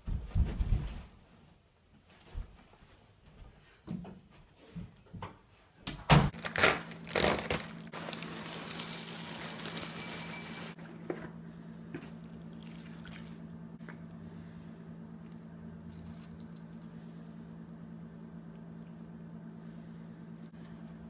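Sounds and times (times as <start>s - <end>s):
cereal poured from packet: 8.0s - 10.8s
steady low hum: 10.1s - 21.0s.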